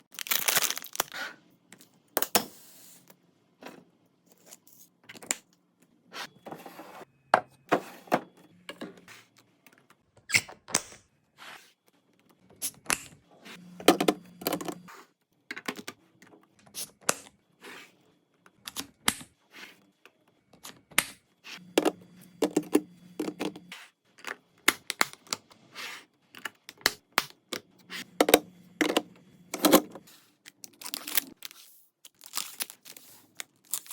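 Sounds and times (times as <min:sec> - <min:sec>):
packaging rustling: 0:00.0 - 0:01.1, 0:30.5 - 0:33.9
containers clicking and clattering: 0:21.8 - 0:23.6.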